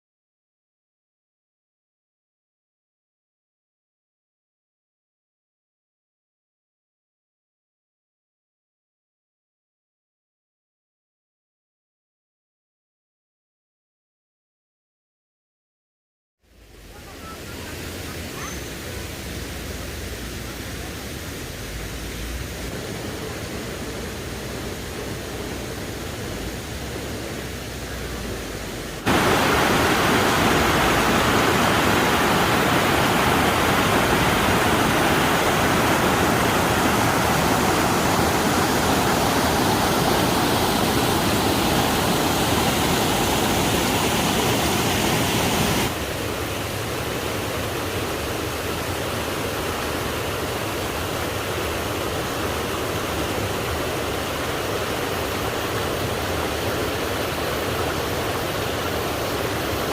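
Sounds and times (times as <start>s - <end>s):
rushing water roar: 16.5s - 59.9s.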